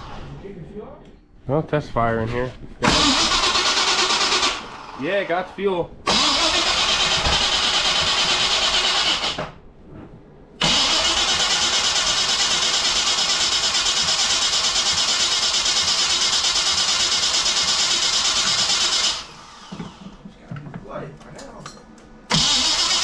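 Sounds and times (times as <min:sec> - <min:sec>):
engine starter cranking: 0:02.8 - 0:05.0, 0:06.1 - 0:09.6, 0:10.6 - 0:20.0, 0:22.3 - 0:23.0.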